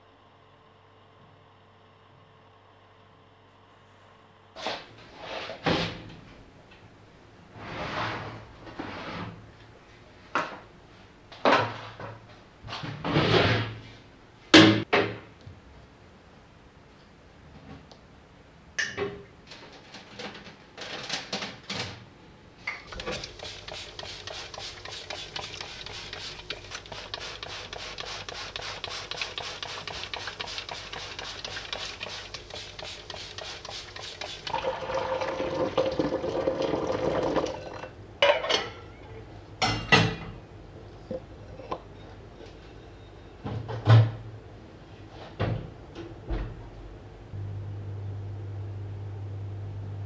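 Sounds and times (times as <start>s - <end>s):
water running: 22.9s - 38.0s
dishes clinking and knocking: 37.7s - 38.8s, 39.6s - 40.4s.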